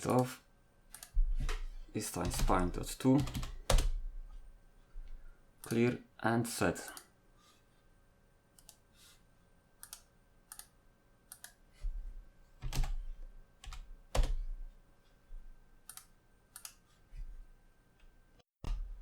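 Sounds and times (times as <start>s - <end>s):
computer keyboard keys clicking: 2.2s - 3.9s, 12.6s - 13.0s, 13.6s - 14.4s.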